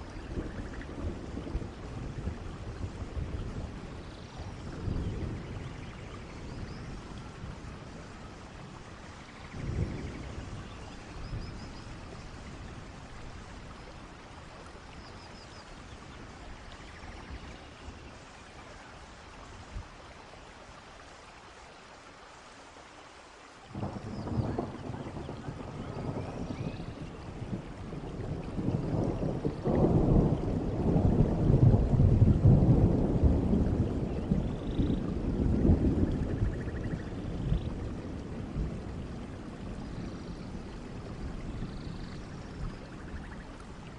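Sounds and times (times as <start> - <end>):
low rumble of thunder: 0.0 - 21.1, 23.7 - 43.9
steady rainfall: 0.0 - 43.9.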